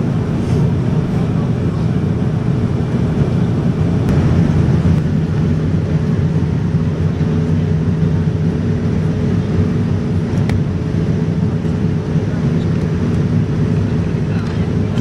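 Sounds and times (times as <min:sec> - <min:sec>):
rushing air: 0:00.0 - 0:06.0
jet engines droning: 0:00.0 - 0:15.0.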